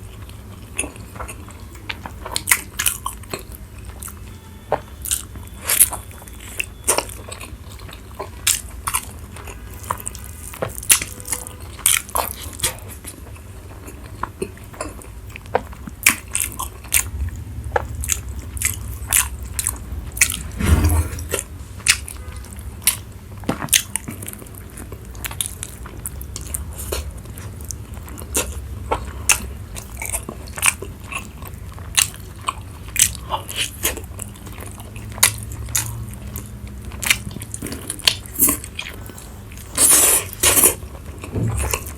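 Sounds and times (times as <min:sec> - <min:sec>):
chewing and crunching food: 0:00.0 - 0:20.3, 0:22.6 - 0:41.9
long loud noise: 0:17.2 - 0:21.8.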